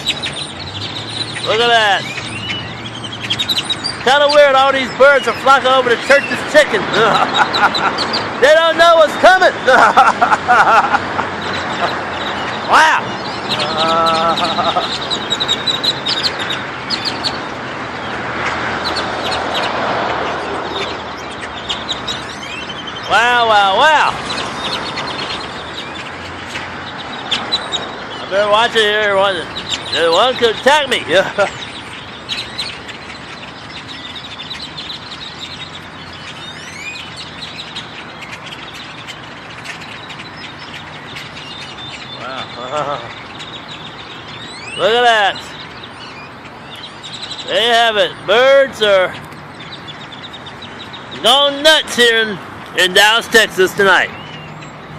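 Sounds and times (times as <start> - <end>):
flock of birds chirping: 0.0 - 54.9
rising bird whistle: 33.4 - 38.3, 43.4 - 48.2.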